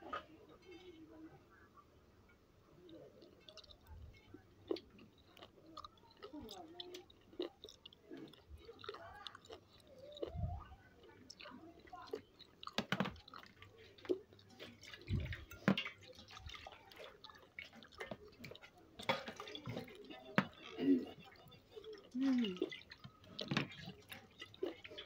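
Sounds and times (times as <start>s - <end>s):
wet chewing and lip-smacking: 2.8s - 25.0s
small mouth clicks: 2.9s - 11.5s.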